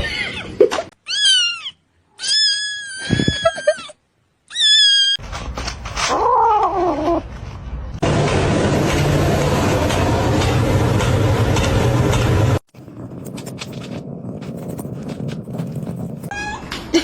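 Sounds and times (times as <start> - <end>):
cat meowing: 16.3 - 16.7.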